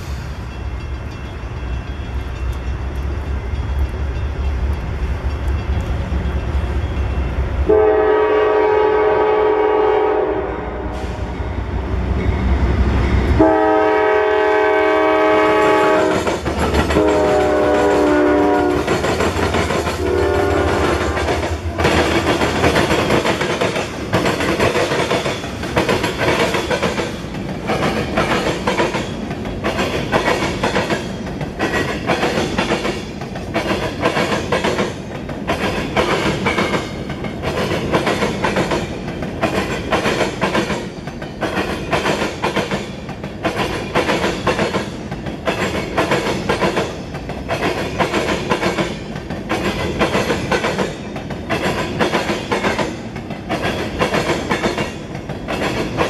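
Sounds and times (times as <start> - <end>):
locomotive air horn: 7.7 - 11.3, 13.4 - 16.3, 16.9 - 18.9, 20.0 - 21.2.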